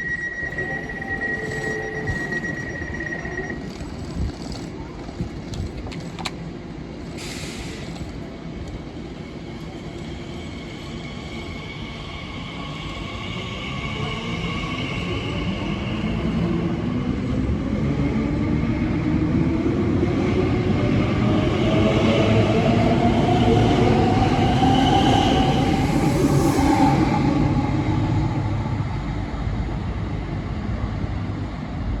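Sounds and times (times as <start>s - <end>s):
electric train motors whining: 0.0s - 6.4s
wheels rumbling on rail: 0.0s - 32.0s.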